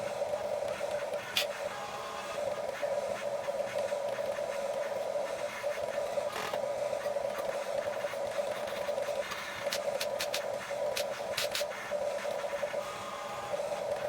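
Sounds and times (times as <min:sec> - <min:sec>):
small electric motors whining: 0:06.3 - 0:06.6.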